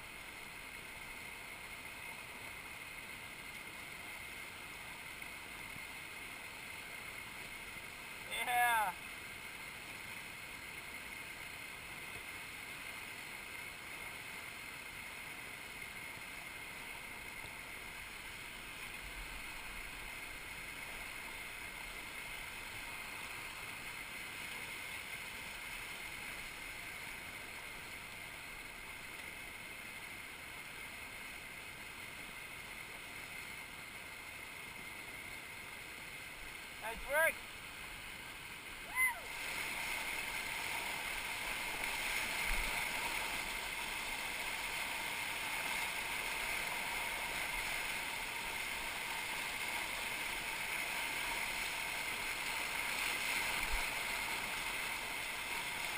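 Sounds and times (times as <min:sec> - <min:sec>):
river rapids rushing: 0:36.3 - 0:55.9.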